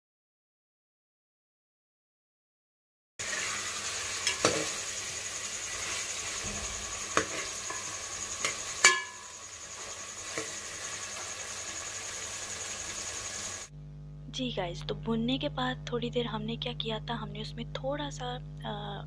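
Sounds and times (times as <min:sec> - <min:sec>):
food sizzling in oil: 0:03.2 - 0:13.7
metal spatula knocking on pot: 0:06.5 - 0:09.3.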